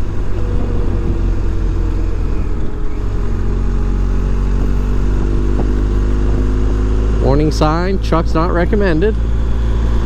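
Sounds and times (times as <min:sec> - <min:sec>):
wind rushing: 0:00.0 - 0:07.2
motorcycle engine running: 0:00.0 - 0:10.0.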